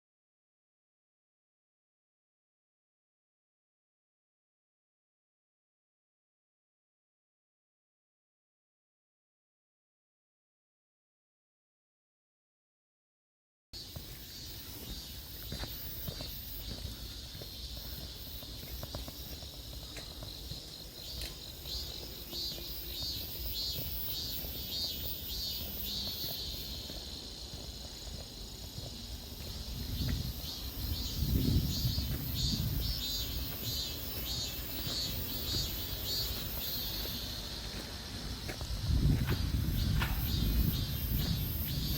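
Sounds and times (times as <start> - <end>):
insects pulsing chorus: 13.8 - 41.9.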